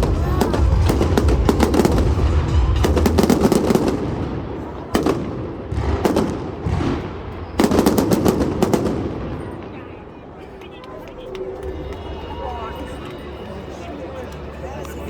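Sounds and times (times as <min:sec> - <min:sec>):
fireworks sharp bangs: 0:00.0 - 0:10.0
fireworks crackling barrages: 0:00.0 - 0:12.2.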